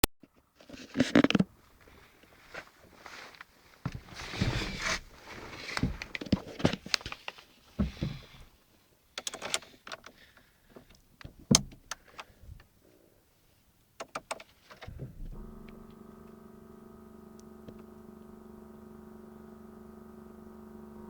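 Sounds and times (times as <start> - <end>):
car door clicks and knocks: 11.2 - 12.0.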